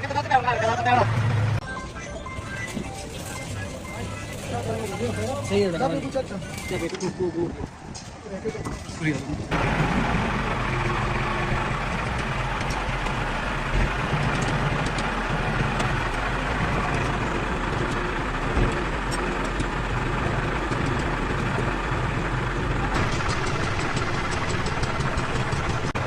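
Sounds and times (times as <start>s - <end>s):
engine idling: 9.5s - 26.0s.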